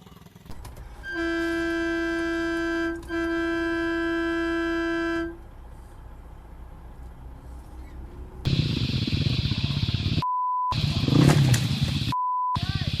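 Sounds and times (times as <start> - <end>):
vehicle horn blast: 1.0 - 5.4.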